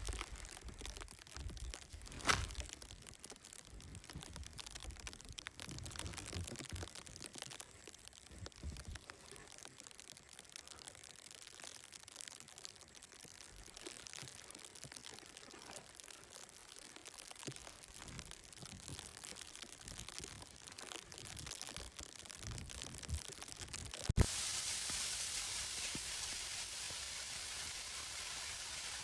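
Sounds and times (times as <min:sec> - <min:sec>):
crinkling and crunching handling: 0:00.0 - 0:24.3
steady hiss: 0:24.0 - 0:29.0.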